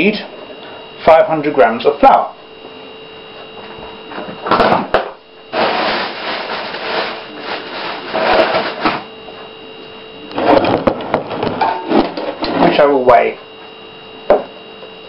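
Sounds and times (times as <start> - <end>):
faint steady hum: 0.0 - 15.0
rustling and scraping: 5.4 - 9.6.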